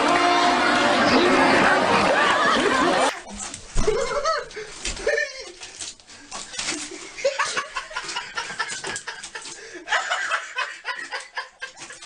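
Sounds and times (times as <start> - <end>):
human laughter: 1.7 - 3.2, 3.8 - 5.6, 6.7 - 12.0.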